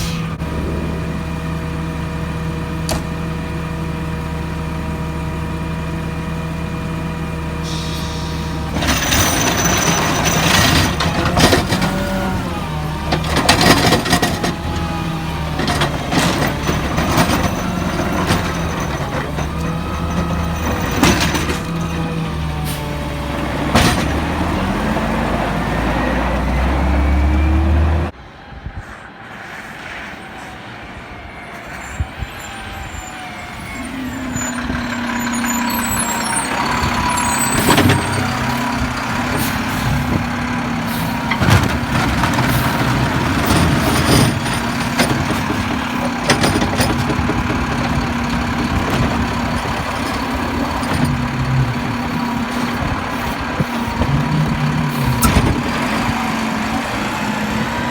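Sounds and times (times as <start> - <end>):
garbage truck engine running: 0.0 - 28.1, 31.8 - 57.9
knocks and clanks: 2.8 - 3.3, 8.6 - 25.4, 34.6 - 56.4.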